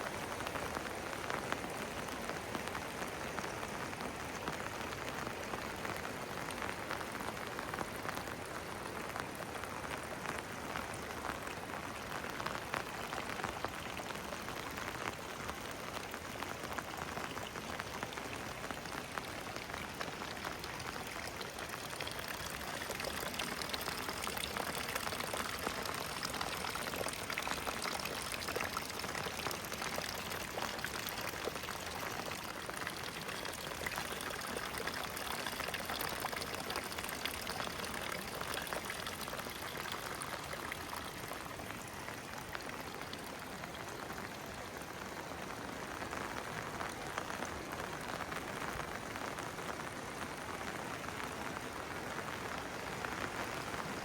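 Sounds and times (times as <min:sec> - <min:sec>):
steady rain falling: 0:00.0 - 0:54.0
water pouring and splashing: 0:16.5 - 0:44.5.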